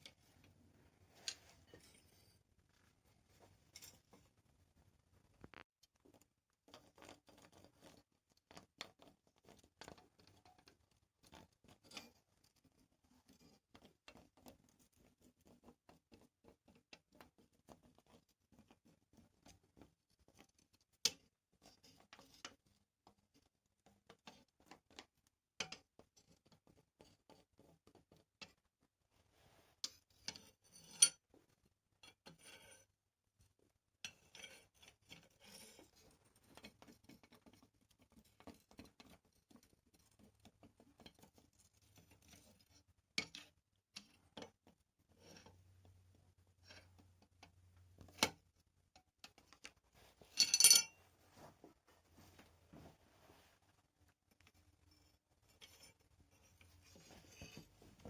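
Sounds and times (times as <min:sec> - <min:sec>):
small metal parts clicking and scraping: 0:50.3 - 0:51.0.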